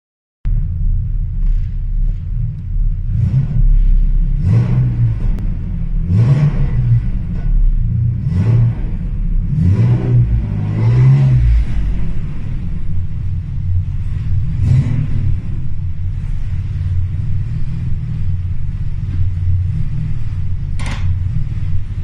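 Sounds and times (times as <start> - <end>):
car engine revving: 0.5 - 22.0.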